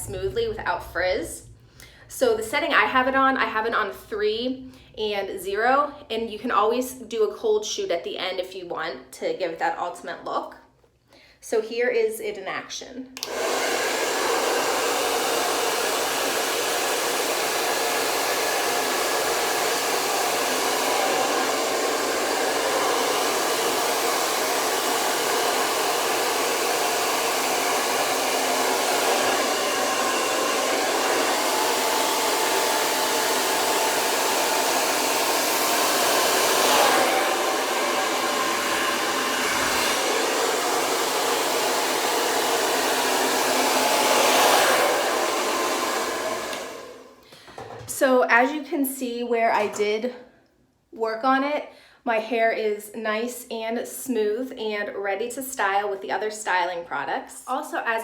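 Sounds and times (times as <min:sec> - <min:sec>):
hair dryer running: 0:13.2 - 0:47.8.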